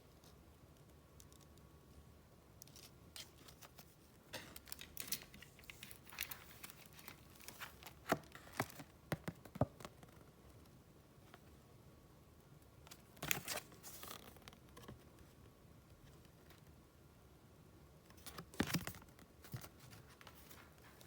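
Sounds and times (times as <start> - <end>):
paper rustling and crinkling: 2.7 - 10.0, 12.9 - 15.0, 18.1 - 21.0.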